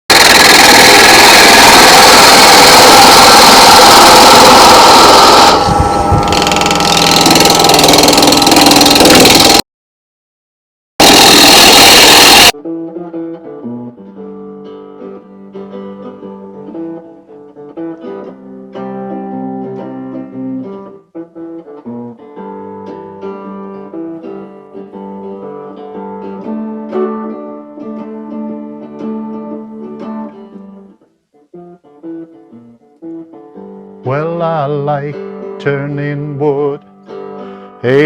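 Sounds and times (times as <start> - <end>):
loud burst of harsh noise: 0.1 - 9.7, 11.0 - 12.6.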